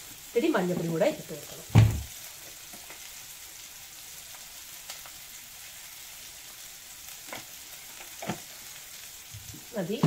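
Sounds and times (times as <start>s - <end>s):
food sizzling on a stove: 0.0s - 10.0s.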